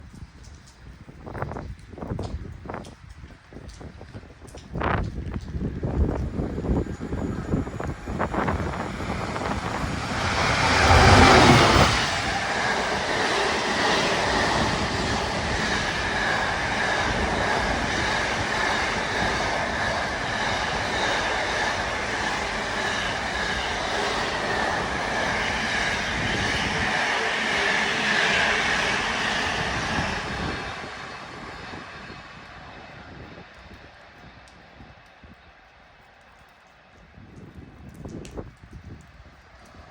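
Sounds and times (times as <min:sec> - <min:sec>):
diesel locomotive engine rumble: 0:01.4 - 0:35.7
train wheel squeal: 0:06.0 - 0:33.4.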